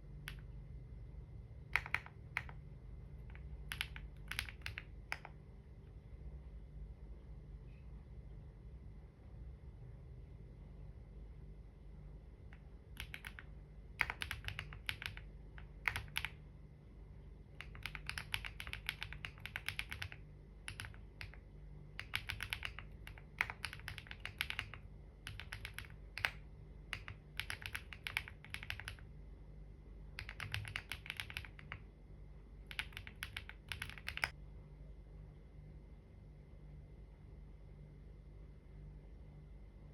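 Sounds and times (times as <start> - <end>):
typing on computer keyboard: 0.2 - 0.5, 1.6 - 2.6, 3.2 - 5.4, 12.6 - 16.4, 17.6 - 29.1, 30.2 - 31.8, 32.6 - 34.4.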